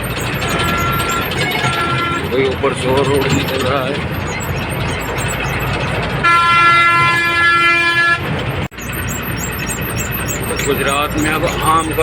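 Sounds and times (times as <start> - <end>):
highway traffic noise: 0.0 - 12.0
vehicle horn: 0.4 - 3.7, 6.1 - 8.4.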